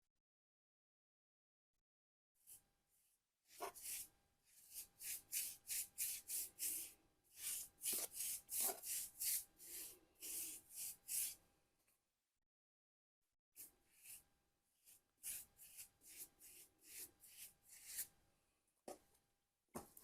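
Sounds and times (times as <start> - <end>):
hand sanding strokes: 3.6 - 11.4, 15.2 - 18.1.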